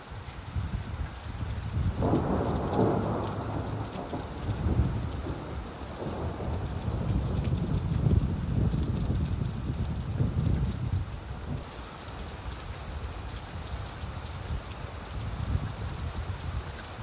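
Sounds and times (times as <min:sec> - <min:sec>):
steady rainfall: 0:00.0 - 0:17.0
low rumble of thunder: 0:01.4 - 0:11.6.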